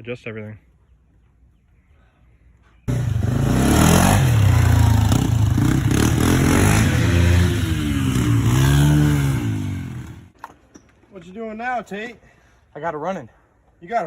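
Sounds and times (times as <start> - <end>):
atv engine revving: 2.9 - 10.4.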